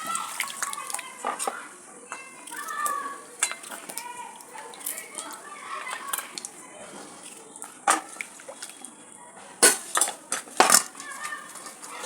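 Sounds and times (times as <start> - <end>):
metal utensils and pot clanking: 0.0 - 8.8, 9.4 - 12.0.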